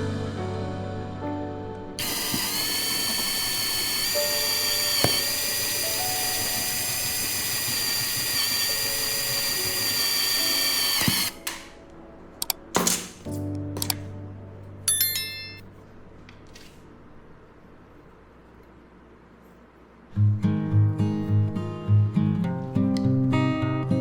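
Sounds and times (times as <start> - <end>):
power tool motor whining: 2.0 - 11.5.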